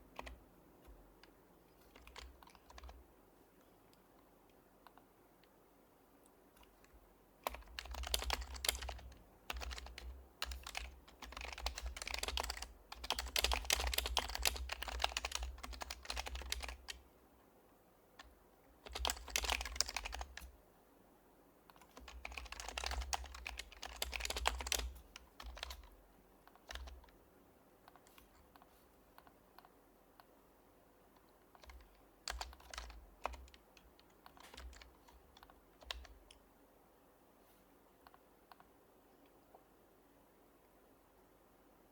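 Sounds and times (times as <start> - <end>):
typing on a keyboard: 0.1 - 3.0, 6.6 - 17.0, 18.2 - 20.5, 21.7 - 27.2, 31.2 - 36.4.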